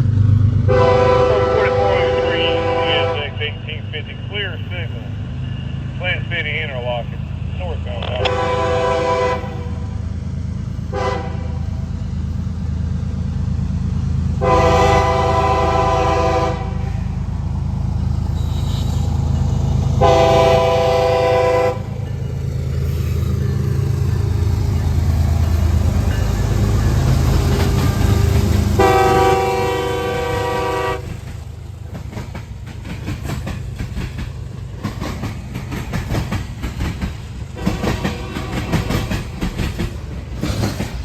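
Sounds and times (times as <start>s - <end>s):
train rumbling past: 0.0s - 41.0s
locomotive horn blasts: 0.7s - 3.8s, 8.0s - 9.9s, 10.9s - 11.6s, 14.4s - 17.0s, 20.0s - 21.9s, 28.0s - 31.2s, 37.6s - 39.1s.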